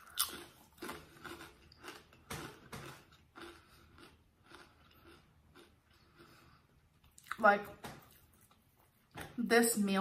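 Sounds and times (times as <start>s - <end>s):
person chewing crunchy cracker: 0.0s - 7.4s.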